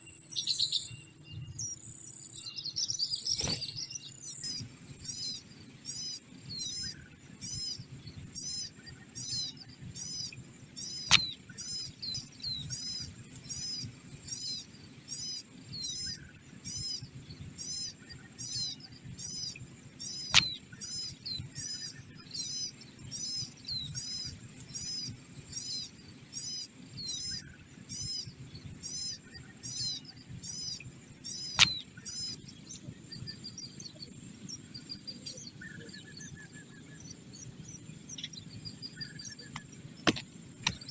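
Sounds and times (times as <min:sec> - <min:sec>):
small bird chirping: 0:00.0 - 0:40.9
sharp clicks: 0:11.0 - 0:11.4, 0:20.3 - 0:20.6, 0:31.6 - 0:31.9, 0:39.5 - 0:40.9.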